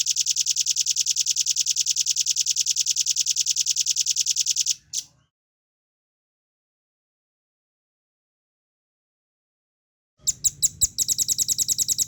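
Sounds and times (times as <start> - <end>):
bird singing a fast trill: 10.3 - 12.0.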